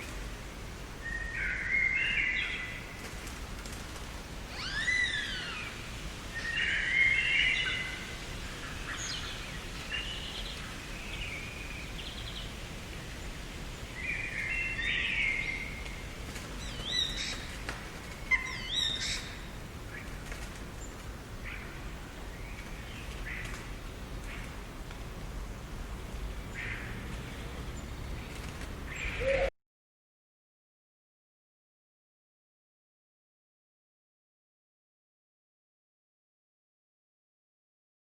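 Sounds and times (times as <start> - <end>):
low background hiss: 0.0 - 29.5
small birds chirping: 6.4 - 24.7, 25.3 - 29.5.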